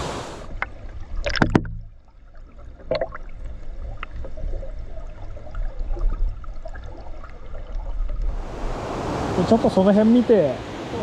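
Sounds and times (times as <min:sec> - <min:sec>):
sharp knocks: 0:01.4 - 0:01.9.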